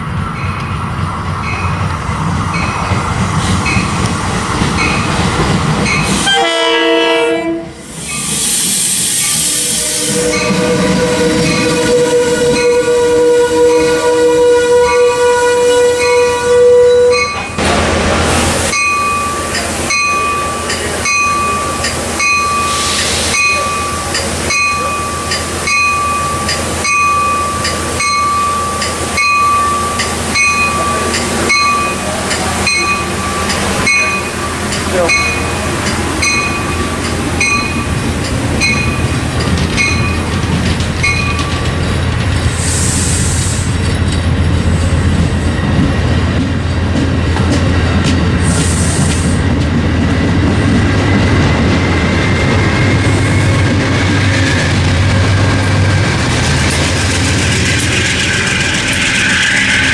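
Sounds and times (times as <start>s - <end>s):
train wheel rumble and clatter: 0.0s - 59.9s
air hisses: 7.8s - 10.3s, 42.4s - 43.8s, 48.4s - 49.4s
bell ringing: 18.7s - 35.6s, 36.2s - 38.0s, 41.0s - 41.6s.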